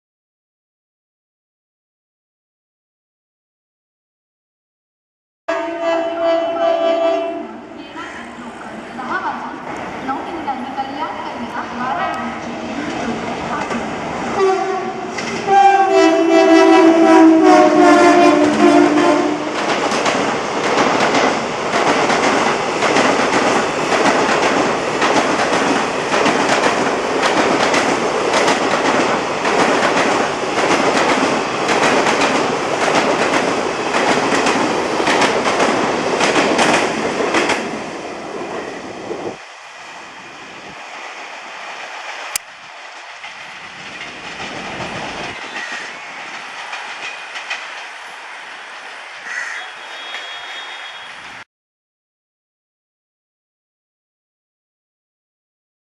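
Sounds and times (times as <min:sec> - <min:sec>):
twin-tone locomotive horn: 0:05.5 - 0:07.8, 0:14.4 - 0:19.6, 0:49.3 - 0:51.4
wheels clickety-clack over rail joints: 0:12.1 - 0:16.4, 0:17.9 - 0:37.8, 0:41.8 - 0:51.4.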